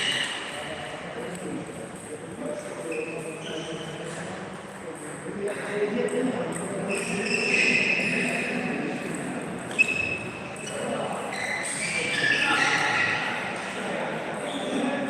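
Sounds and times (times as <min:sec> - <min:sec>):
murmur of voices in a hall: 0:00.0 - 0:15.0
table tennis ball click: 0:05.6 - 0:07.1.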